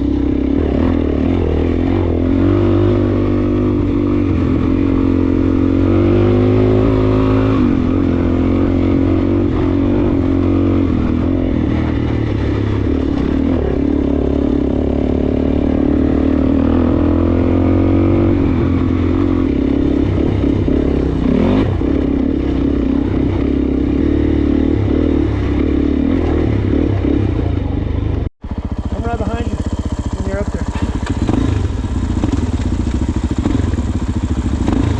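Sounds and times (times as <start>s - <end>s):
dirt bike engine revving: 0.0s - 34.9s.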